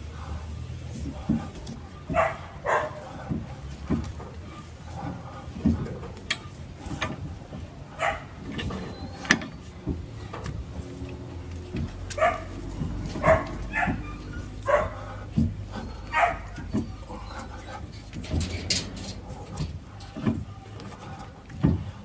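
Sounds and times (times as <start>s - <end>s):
dog barking: 2.1s - 3.1s, 8.0s - 8.4s, 12.1s - 15.1s, 16.0s - 17.7s.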